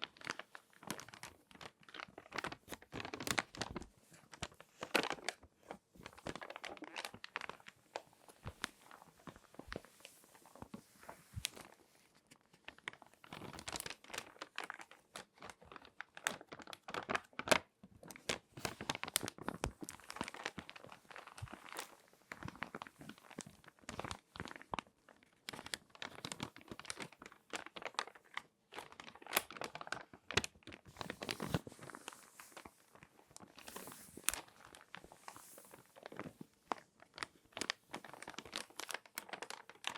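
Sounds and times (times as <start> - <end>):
magazine pages crinkling: 0.0 - 39.9.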